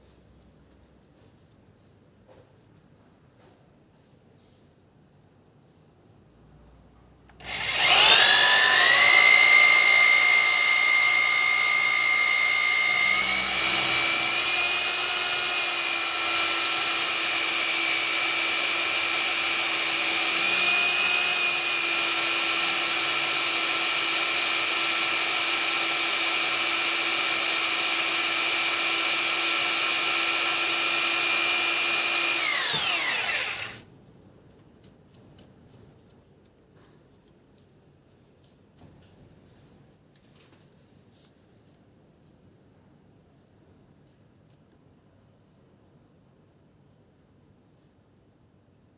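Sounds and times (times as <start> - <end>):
electric drill whining: 7.4 - 33.8.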